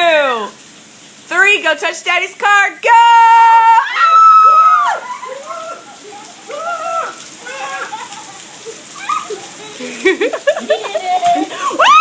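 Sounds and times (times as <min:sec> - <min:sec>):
rain falling: 0:00.0 - 0:12.0
young child shrieking: 0:03.3 - 0:08.3, 0:08.9 - 0:09.8, 0:11.5 - 0:12.0.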